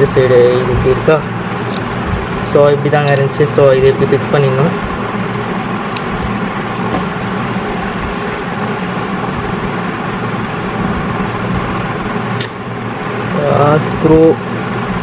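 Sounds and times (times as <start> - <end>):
background hum and hiss: 0.0 - 15.0.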